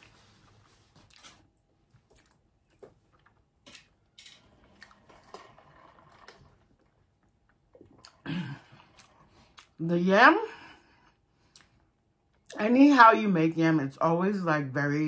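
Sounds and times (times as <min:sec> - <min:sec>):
close-up chewing: 0:00.9 - 0:04.0.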